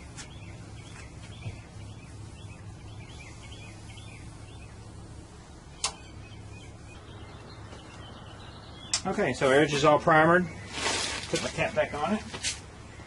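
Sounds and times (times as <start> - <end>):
small birds chirping: 0.0 - 13.0
steady low hum: 0.0 - 13.0
sharp click: 5.8 - 6.0.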